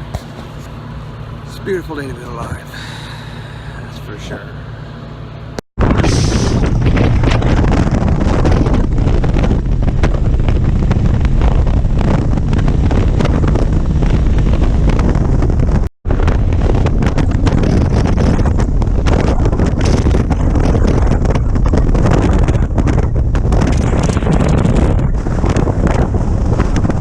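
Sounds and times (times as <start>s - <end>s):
wind buffeting microphone: 5.8s - 27.0s
motorcycle engine running: 6.1s - 27.0s.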